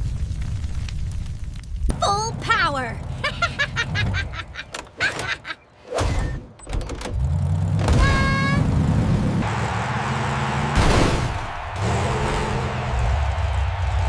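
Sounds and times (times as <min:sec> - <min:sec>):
low vehicle engine drone: 0:06.8 - 0:14.0.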